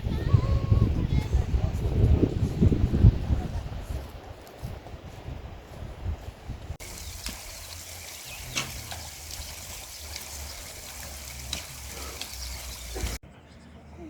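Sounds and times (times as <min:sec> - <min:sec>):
stream water rushing: 0:06.8 - 0:13.2.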